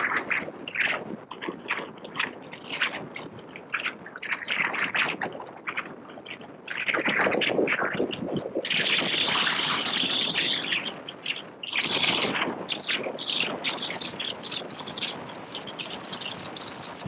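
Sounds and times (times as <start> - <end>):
birds chirping in a chorus: 9.2 - 17.0.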